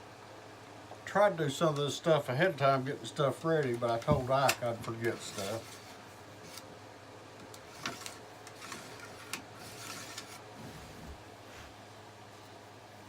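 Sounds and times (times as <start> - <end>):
brush scraping in rifle barrel: 5.1 - 6.7, 7.7 - 10.5.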